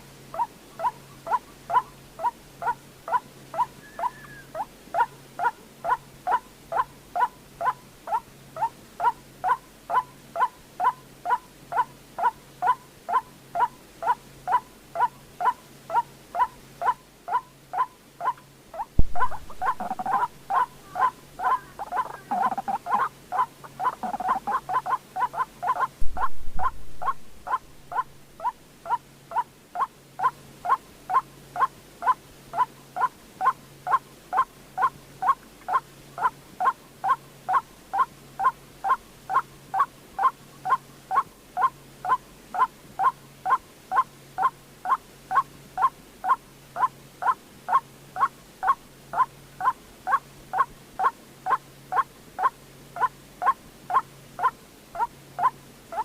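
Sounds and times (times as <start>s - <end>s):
waterhen calling: 0.3s - 56.0s
low thump: 19.0s - 19.4s, 26.0s - 27.0s.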